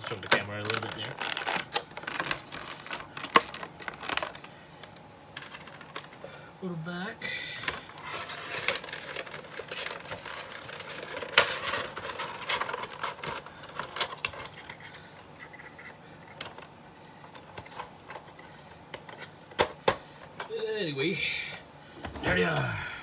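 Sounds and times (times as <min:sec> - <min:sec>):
plastic crinkling and scraping: 0:00.0 - 0:06.4, 0:07.6 - 0:19.4.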